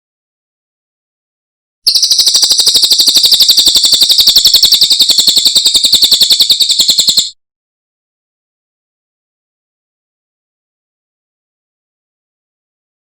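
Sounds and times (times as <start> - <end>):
bird singing a fast trill: 1.9 - 7.4.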